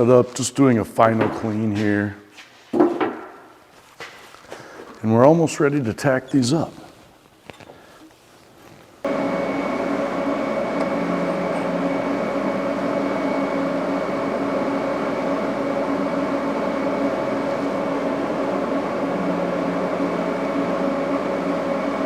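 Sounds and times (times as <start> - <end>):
welder buzzing hum: 9.0 - 22.0.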